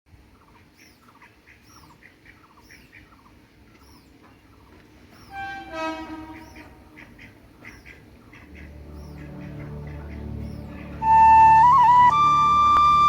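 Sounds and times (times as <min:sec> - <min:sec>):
small birds chirping: 0:00.2 - 0:13.0
deep honk: 0:05.3 - 0:06.8.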